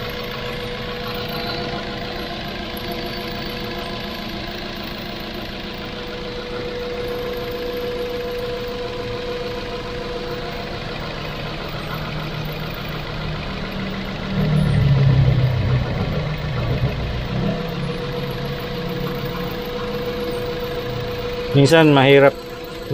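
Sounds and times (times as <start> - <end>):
car engine idling: 0.0 - 22.9
loud low rumble: 11.2 - 22.3.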